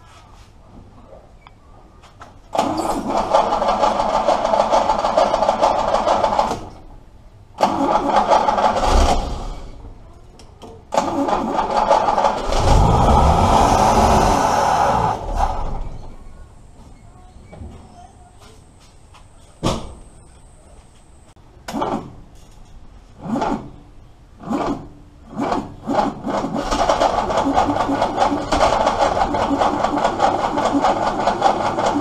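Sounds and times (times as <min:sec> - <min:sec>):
car engine cranking: 0:02.6 - 0:06.7, 0:07.6 - 0:09.3, 0:10.9 - 0:16.2, 0:24.4 - 0:32.0.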